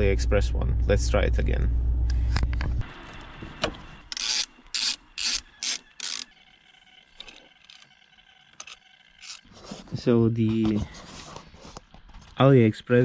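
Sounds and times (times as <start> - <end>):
ratchet wrench rasping: 4.1 - 6.3, 8.5 - 9.5.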